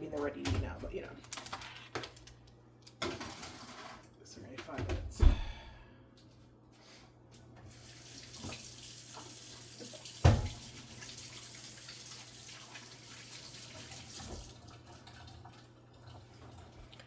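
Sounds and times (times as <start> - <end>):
tap running into sink: 8.3 - 10.7.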